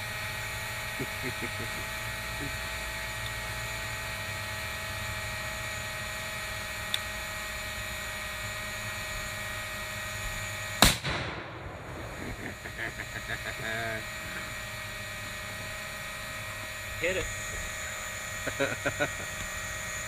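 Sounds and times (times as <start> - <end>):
drone propellers whining: 0.0 - 20.0
rifle shot: 10.8 - 13.0.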